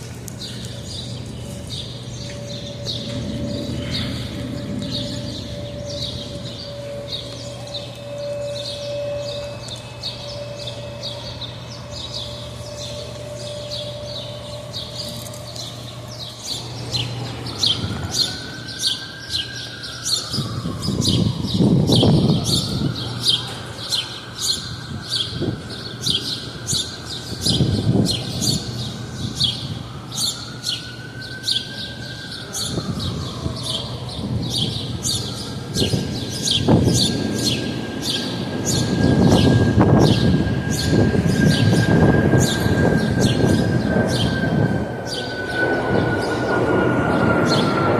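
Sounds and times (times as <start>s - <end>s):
siren wailing: 0.2s - 47.9s
low rumbling: 1.1s - 9.4s.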